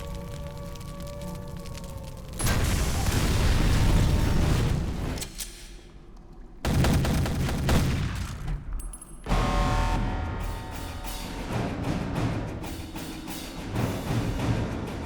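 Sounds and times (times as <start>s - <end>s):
explosion booms: 2.4s - 5.2s
film score music: 4.1s - 15.0s
heavy gunfire: 6.7s - 8.7s.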